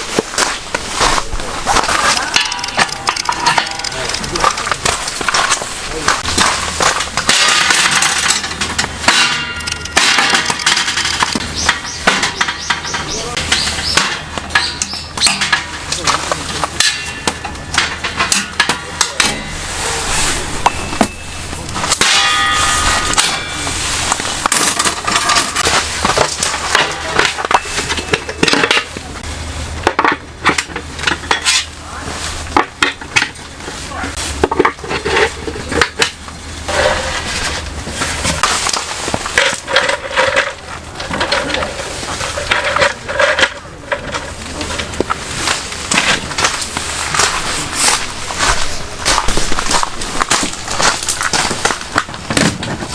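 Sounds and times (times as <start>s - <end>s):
camping gear clattering: 0.0s - 52.9s
metal pots ringing: 1.7s - 29.2s.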